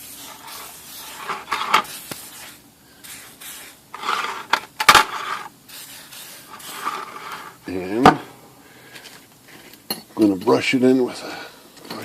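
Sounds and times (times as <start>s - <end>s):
spray oil hissing: 0.0s - 4.0s, 5.6s - 7.6s.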